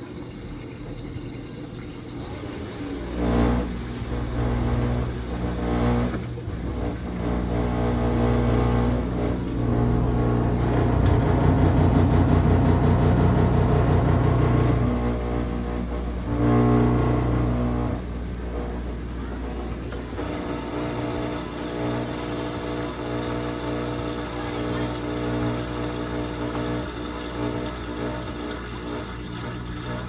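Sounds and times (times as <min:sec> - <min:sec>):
washing machine motor humming: 0:00.0 - 0:30.0.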